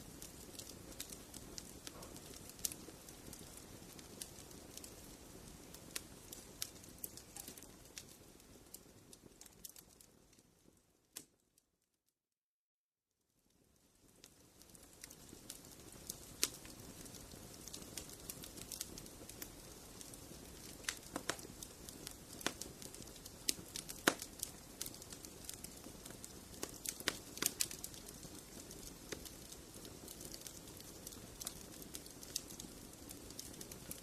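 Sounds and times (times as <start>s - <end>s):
fireplace fire crackling: 0.0s - 11.6s, 13.2s - 34.0s.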